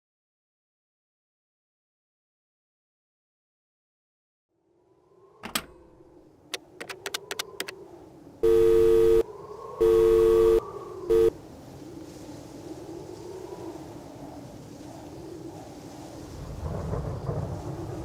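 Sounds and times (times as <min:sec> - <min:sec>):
sharp clicks: 0:06.5 - 0:07.8
faint low hum: 0:08.4 - 0:09.2, 0:09.8 - 0:11.3
two-pitch telephone tone: 0:08.4 - 0:09.2, 0:09.8 - 0:11.3.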